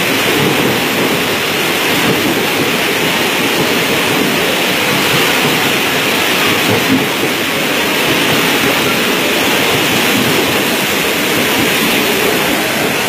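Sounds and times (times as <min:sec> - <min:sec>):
train wheels spraying water: 0:00.0 - 0:13.0.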